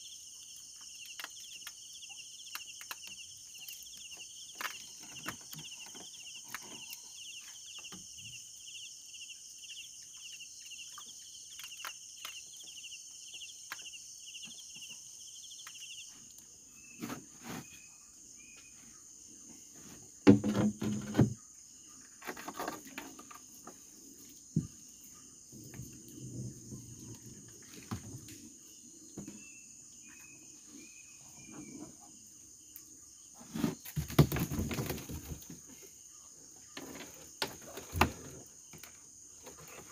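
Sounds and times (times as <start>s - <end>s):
knocking and rustling: 19.8s - 21.4s, 33.4s - 35.8s.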